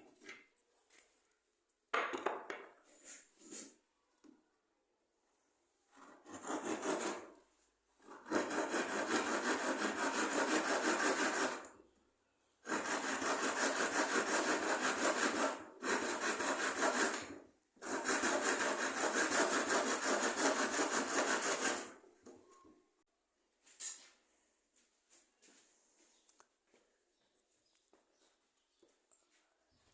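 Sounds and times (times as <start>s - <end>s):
rubbing strokes against wood: 12.6s - 21.9s.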